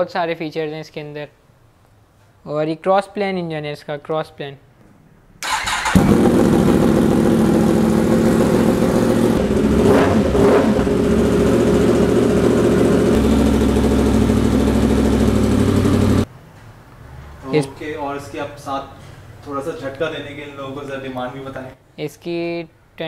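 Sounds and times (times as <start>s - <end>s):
motorcycle engine starting and idling: 5.4s - 16.3s.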